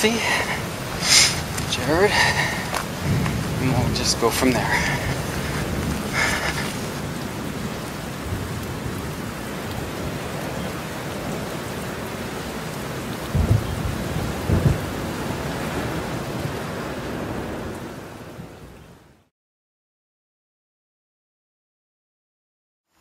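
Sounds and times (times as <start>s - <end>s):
steady rain hiss: 0.0s - 19.3s
low thumps: 0.5s - 6.7s.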